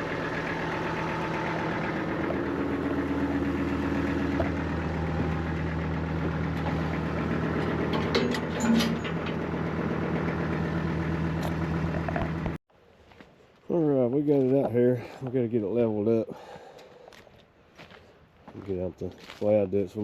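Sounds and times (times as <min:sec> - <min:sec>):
engine idling: 0:00.0 - 0:12.6
short metal clanks: 0:07.6 - 0:09.6.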